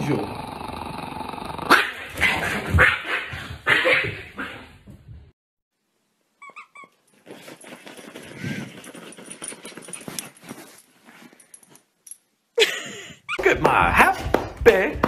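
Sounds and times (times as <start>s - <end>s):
dog whining yips: 6.4s - 7.1s.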